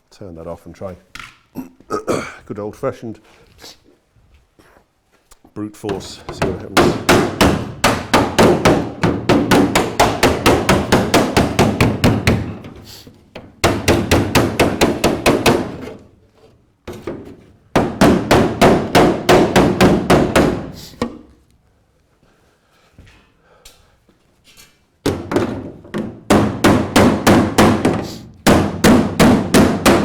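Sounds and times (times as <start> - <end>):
rapid hammer blows on metal panel: 5.9 - 16.1, 17.7 - 21.1, 26.1 - 30.0.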